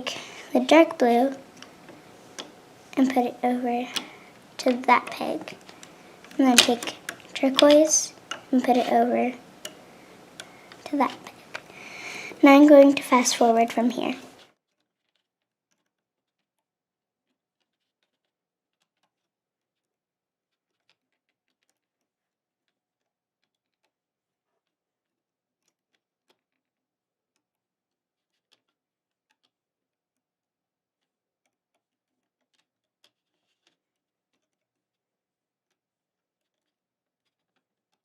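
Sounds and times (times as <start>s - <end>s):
small plastic clicks and ticks: 0.0s - 14.4s.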